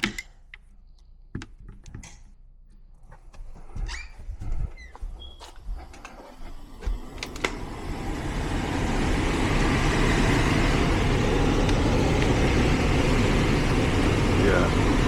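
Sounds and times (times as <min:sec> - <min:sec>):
hvac fan whooshing: 0:04.3 - 0:15.0.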